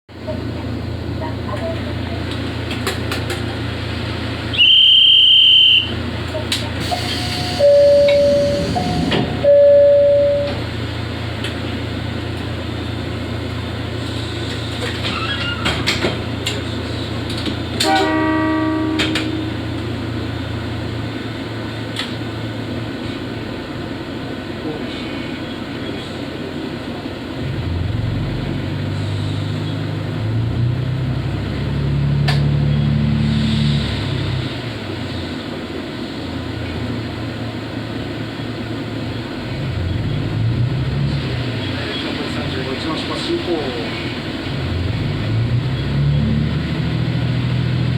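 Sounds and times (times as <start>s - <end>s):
railcar diesel engine running: 0.1s - 47.9s
train horn: 7.0s - 10.6s, 17.8s - 19.9s.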